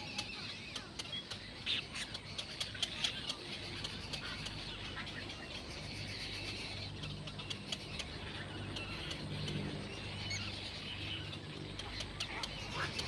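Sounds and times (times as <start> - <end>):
birds chirping and twittering: 0.0 - 13.0
steady low hum: 0.0 - 13.0
faint clicks: 0.2 - 4.6.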